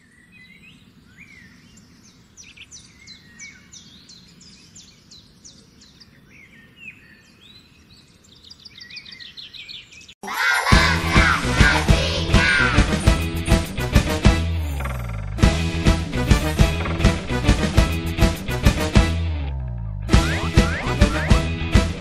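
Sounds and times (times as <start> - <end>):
birds chirping: 0.0 - 10.2, 11.2 - 18.6, 20.1 - 21.8
loud music: 10.6 - 22.0.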